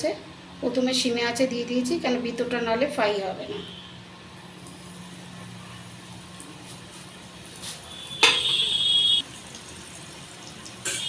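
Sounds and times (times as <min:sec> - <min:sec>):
oil sizzling loudly: 0:04.5 - 0:11.0.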